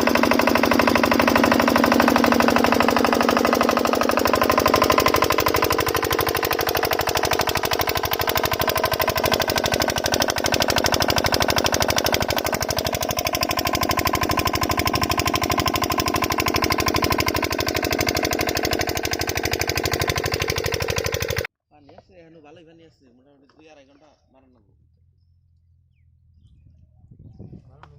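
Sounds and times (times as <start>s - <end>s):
water pump diesel engine running: 0.0s - 21.5s.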